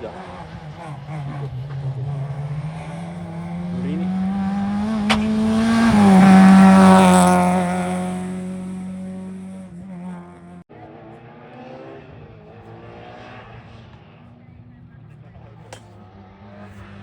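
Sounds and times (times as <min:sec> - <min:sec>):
rally car passing at speed: 0:00.1 - 0:14.4, 0:16.0 - 0:17.0
engine crack: 0:04.1 - 0:08.6.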